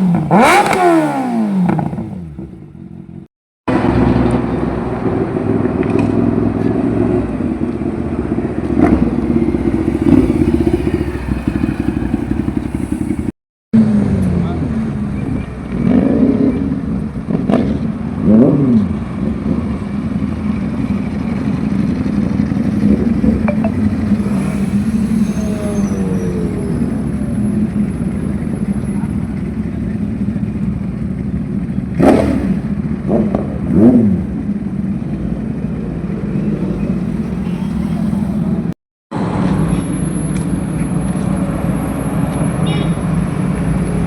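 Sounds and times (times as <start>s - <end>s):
motorcycle engine idling: 9.0s - 13.3s, 26.5s - 32.0s.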